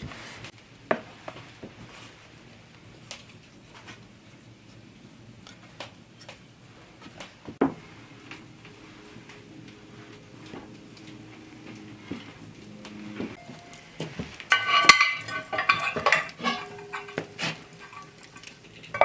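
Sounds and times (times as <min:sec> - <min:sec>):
kitchen utensils and dishes clicking: 0:13.3 - 0:19.0.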